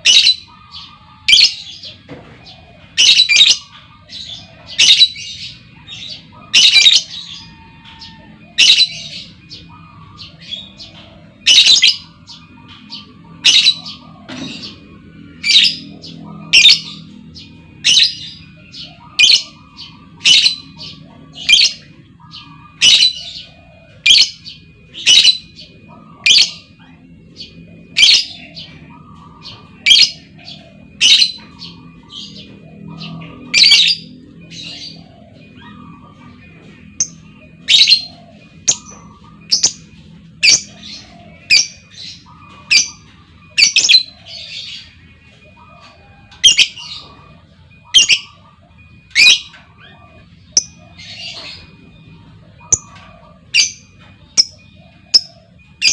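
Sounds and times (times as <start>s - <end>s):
lovebird chirping: 46.4s - 55.9s.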